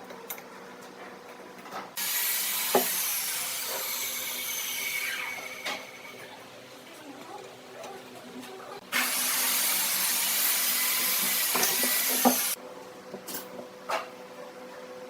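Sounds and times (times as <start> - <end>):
woodworking tool hissing: 2.0 - 6.3, 8.8 - 12.6.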